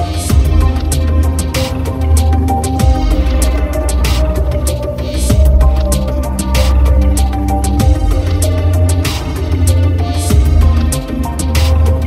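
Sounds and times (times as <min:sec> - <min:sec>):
background music with bass beat: 0:00.0 - 0:12.0.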